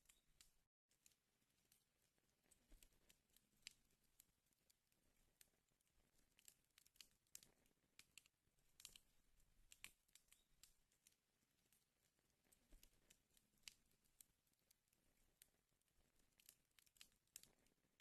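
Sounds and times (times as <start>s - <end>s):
wood fire crackling: 0.0s - 18.0s
fire pops and snaps: 6.4s - 11.2s, 16.2s - 18.0s.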